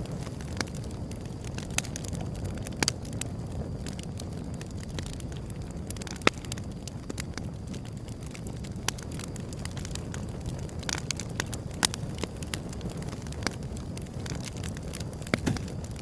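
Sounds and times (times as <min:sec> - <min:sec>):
burning wood crackling and popping: 0:00.0 - 0:16.0
fire rumbling: 0:00.0 - 0:16.0.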